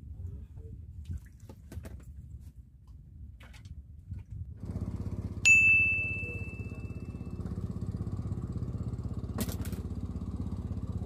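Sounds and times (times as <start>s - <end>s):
small engine running: 4.6s - 11.0s
bright alert ding: 5.5s - 7.1s.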